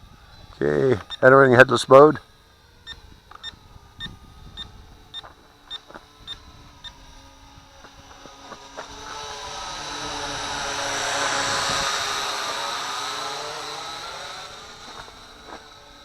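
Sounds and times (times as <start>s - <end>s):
drone propellers buzzing: 0.0s - 16.0s
quadcopter motors whining: 0.0s - 16.0s
radio transmitter beeping: 0.6s - 2.2s, 2.8s - 7.0s.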